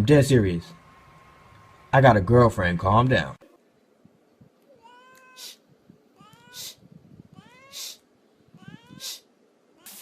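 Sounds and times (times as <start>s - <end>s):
cat meowing: 4.7s - 5.6s, 6.2s - 10.0s
short hiss-like noise: 9.0s - 10.0s.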